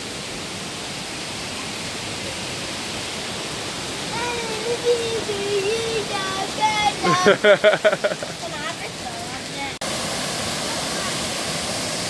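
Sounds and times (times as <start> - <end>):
waterfall rushing: 0.0 - 12.0
child's drawn-out voice: 4.1 - 7.4.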